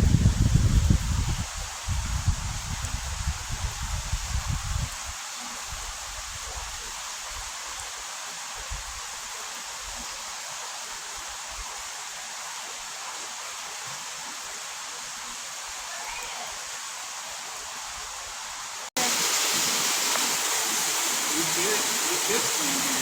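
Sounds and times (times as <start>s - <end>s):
low rumble on microphone: 0.0s - 5.0s
creek water rushing: 0.0s - 23.0s.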